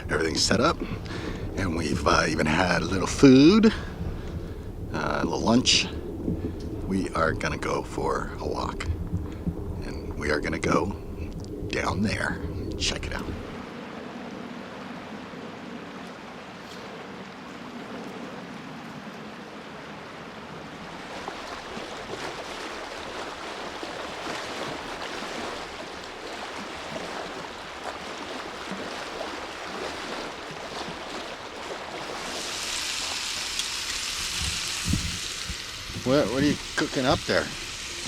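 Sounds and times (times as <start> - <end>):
creek water rushing: 0.0 - 38.0
food sizzling in a frying pan: 32.5 - 38.0.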